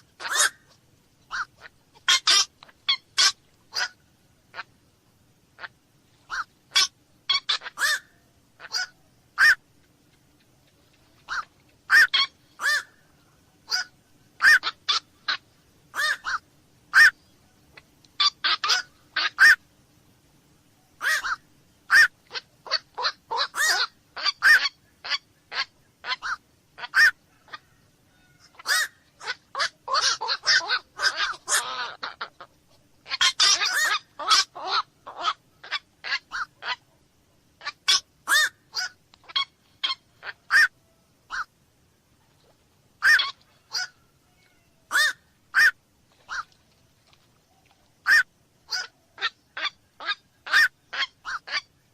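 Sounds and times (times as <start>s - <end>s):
heron harsh honking calls: 0.2s - 0.7s, 1.3s - 4.7s, 5.6s - 9.6s, 11.3s - 13.0s, 13.7s - 17.2s, 18.2s - 19.6s, 21.0s - 36.8s, 37.6s - 41.5s, 43.0s - 44.0s, 44.9s - 46.4s, 48.0s - 51.7s.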